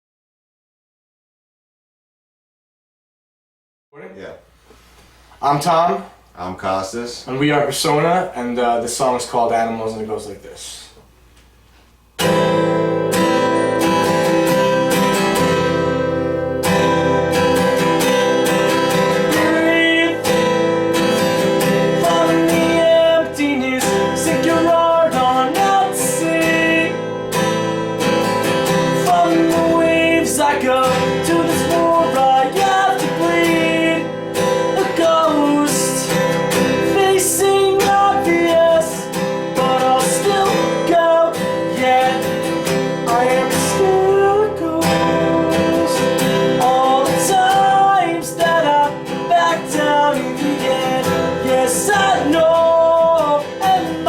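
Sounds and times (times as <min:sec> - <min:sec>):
acoustic guitar strumming and picking: 0:11.2 - 0:54.0.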